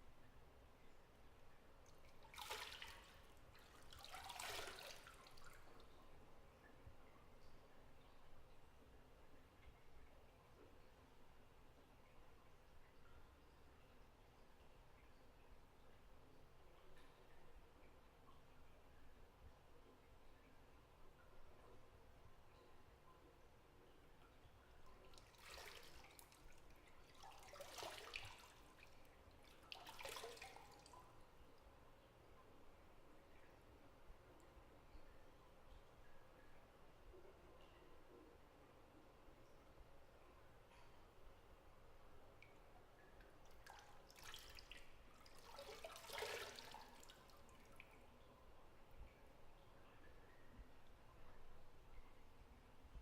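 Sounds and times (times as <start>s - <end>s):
water dripping: 0.0s - 53.0s
bathwater splashing: 2.0s - 5.8s, 25.1s - 31.0s, 43.4s - 47.9s.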